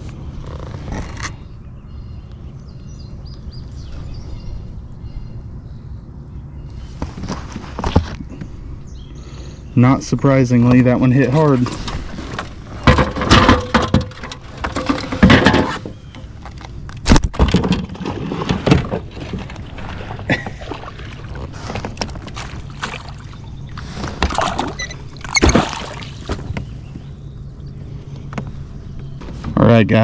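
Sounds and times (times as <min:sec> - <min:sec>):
steady low hum: 0:00.0 - 0:30.0
fish flopping against kayak hull: 0:11.6 - 0:27.2.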